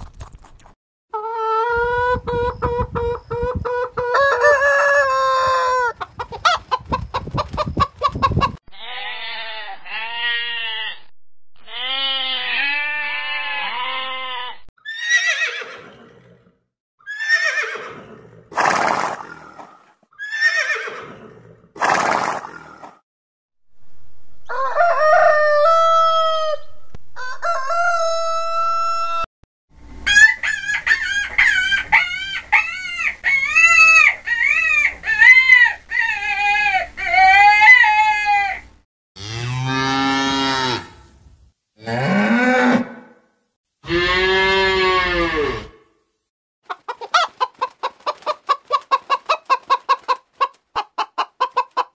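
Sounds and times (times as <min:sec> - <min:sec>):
hens clucking: 0:01.2 - 0:08.6, 0:46.6 - 0:51.9
rooster crowing: 0:04.0 - 0:06.0, 0:24.4 - 0:29.3
high wavering animal cries: 0:08.7 - 0:15.8
horse whinnies: 0:11.6 - 0:16.4, 0:17.0 - 0:19.4, 0:20.2 - 0:22.6.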